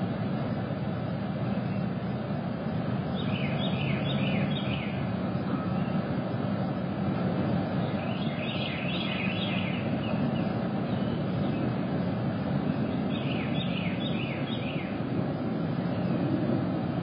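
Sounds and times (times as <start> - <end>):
bird chirping: 3.1 - 6.0, 7.8 - 11.8, 12.7 - 15.0.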